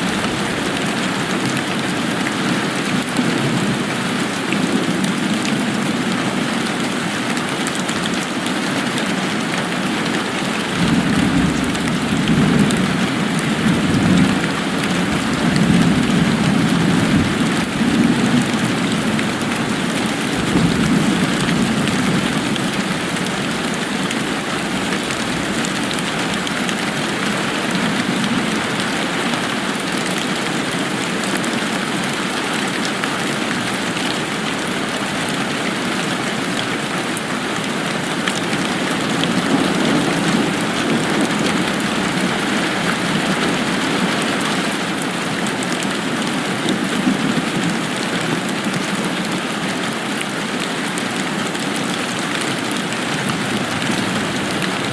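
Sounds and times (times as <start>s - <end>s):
steady rain pattering: 0.0s - 54.9s.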